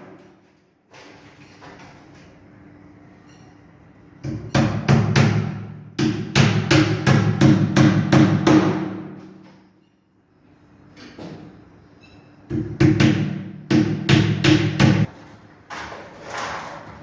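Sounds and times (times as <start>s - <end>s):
hammer striking wood: 4.2s - 9.2s, 12.5s - 15.1s.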